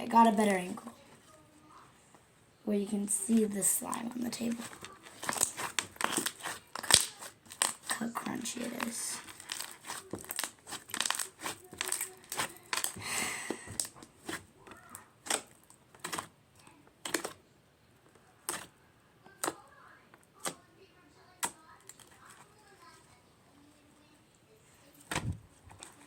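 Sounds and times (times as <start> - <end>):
slime crackling and popping: 4.3 - 16.4, 17.0 - 17.4, 18.4 - 18.7, 21.4 - 22.7.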